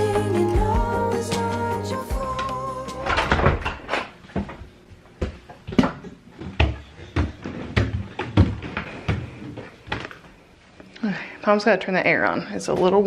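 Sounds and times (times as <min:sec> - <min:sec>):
background music: 0:00.0 - 0:03.5
knocks and clunks of objects handled: 0:03.0 - 0:10.2.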